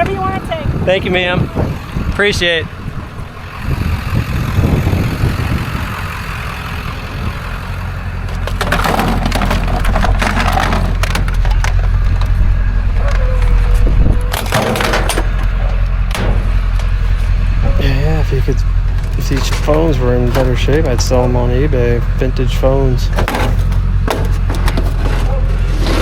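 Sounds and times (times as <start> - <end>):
low rumble: 2.8 - 26.0
scrap clattering: 8.1 - 22.2, 23.0 - 26.0.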